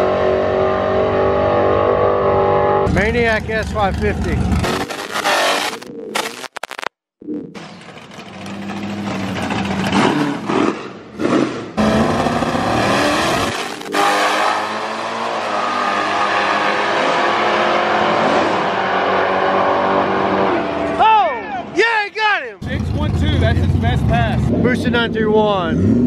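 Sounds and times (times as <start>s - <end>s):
car engine revving: 0.0s - 5.9s, 7.6s - 21.0s, 22.6s - 26.0s
cars launching and pulling away: 7.6s - 21.0s.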